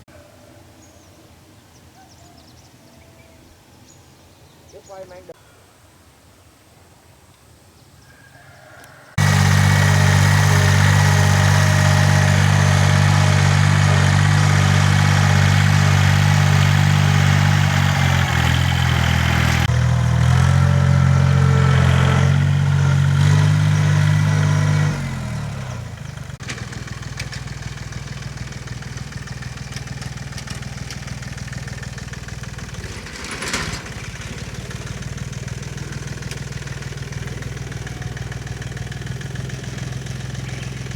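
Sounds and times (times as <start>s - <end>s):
tilling machine engine running: 9.2s - 40.9s.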